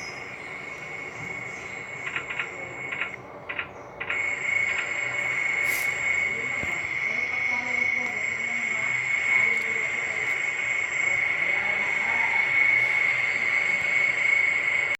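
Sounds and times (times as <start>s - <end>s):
turboprop engines whining: 0.0s - 14.9s
faint clicks: 2.0s - 4.9s.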